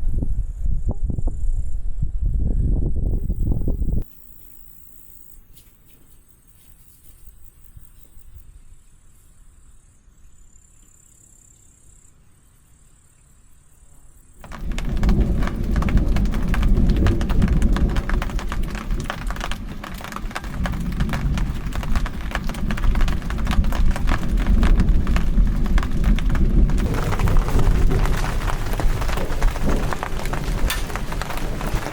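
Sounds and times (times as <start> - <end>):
deep rumble: 14.4 - 31.9
heavy rain: 14.4 - 31.9.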